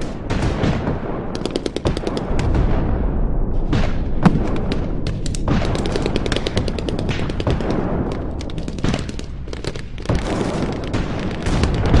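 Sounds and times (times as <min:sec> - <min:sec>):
airsoft gun shots: 0:03.8 - 0:08.0.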